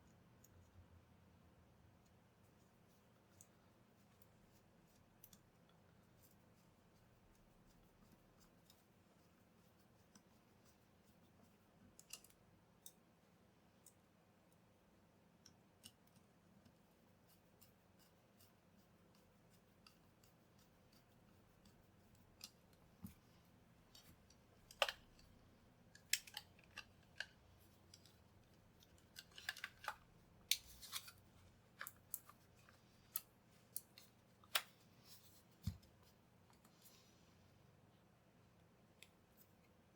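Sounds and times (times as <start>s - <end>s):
small sharp clicks and snips: 4.9s - 6.4s, 11.8s - 13.0s, 13.8s - 14.1s, 15.4s - 23.2s, 23.9s - 31.2s, 31.8s - 34.8s.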